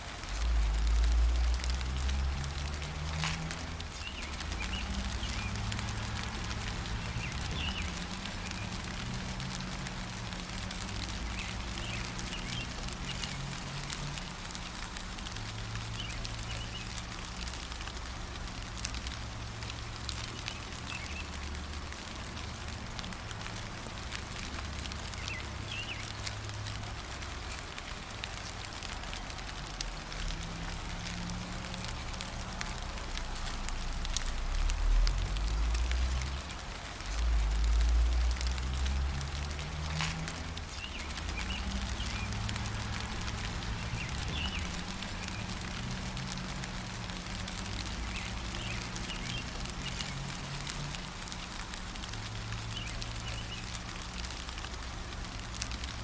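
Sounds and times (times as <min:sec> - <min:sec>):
gentle rain pattering: 0:00.0 - 0:56.0.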